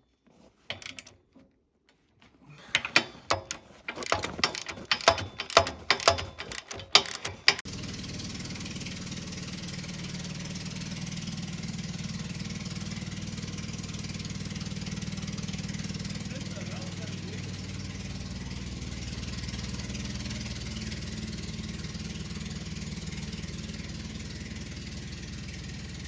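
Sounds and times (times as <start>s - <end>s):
metal clicks and knocks: 0.7s - 1.2s, 2.7s - 7.7s
engine idling: 2.8s - 26.0s.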